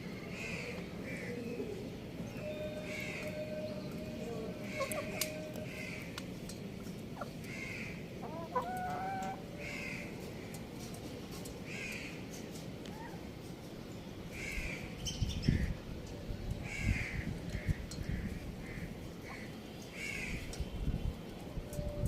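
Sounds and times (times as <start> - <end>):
chickens calling: 1.2 - 10.6.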